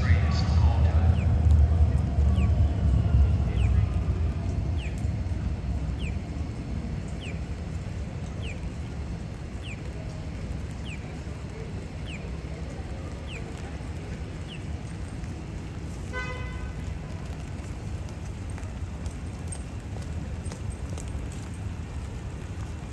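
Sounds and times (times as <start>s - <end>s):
vehicle passing: 0.0s - 14.6s
low traffic rumble: 0.0s - 22.9s.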